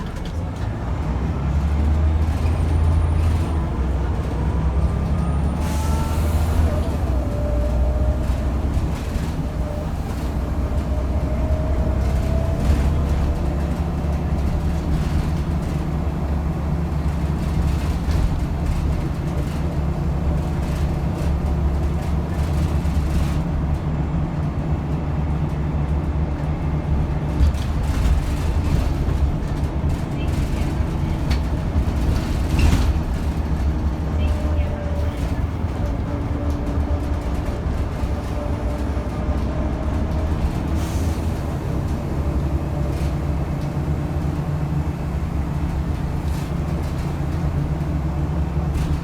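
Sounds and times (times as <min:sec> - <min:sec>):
bus engine drone: 0:00.0 - 0:49.0
body rattles and knocks: 0:11.6 - 0:34.5.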